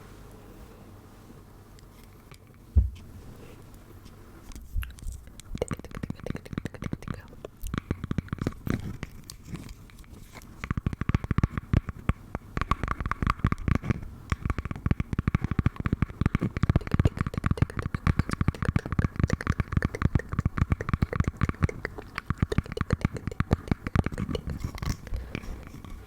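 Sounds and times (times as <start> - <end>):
rapid tapping and clicking: 5.5 - 9.0, 9.7 - 26.0.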